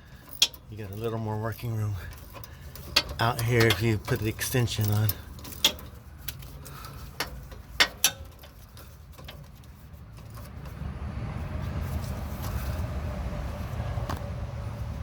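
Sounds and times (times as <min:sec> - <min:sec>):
ratchet metallic clinks: 0:00.0 - 0:10.8.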